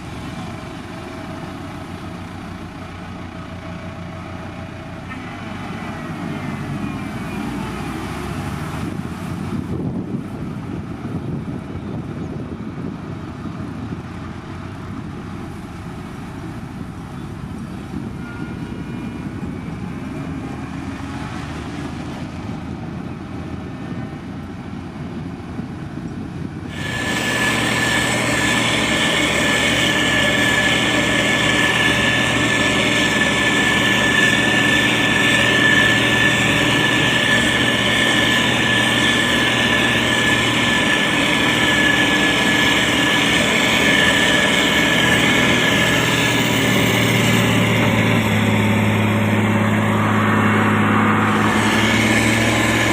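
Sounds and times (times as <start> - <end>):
diesel engine running: 0.0 - 52.9
high whine: 26.6 - 52.9.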